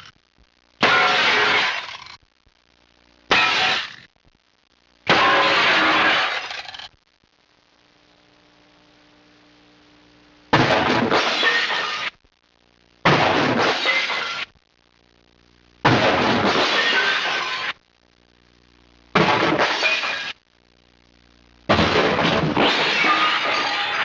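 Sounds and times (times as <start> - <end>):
glass smashing: 0.8 - 2.1, 3.3 - 4.0, 5.1 - 6.8, 11.0 - 12.1, 13.2 - 14.5, 16.0 - 17.8, 19.2 - 20.4, 21.7 - 24.0.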